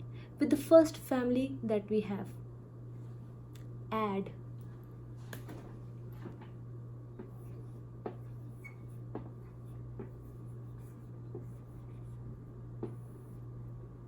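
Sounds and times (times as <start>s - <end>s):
steady low hum: 0.0s - 14.0s
pen tapping and stroking: 7.2s - 12.0s.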